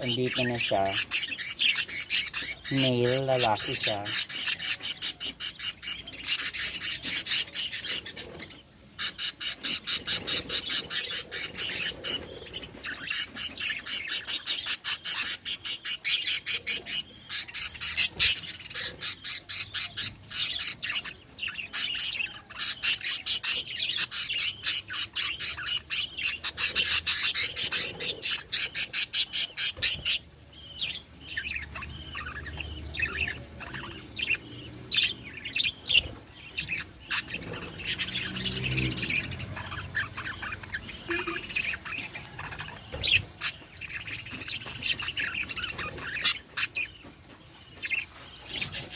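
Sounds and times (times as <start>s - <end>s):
budgerigars chirping: 0.0s - 48.9s.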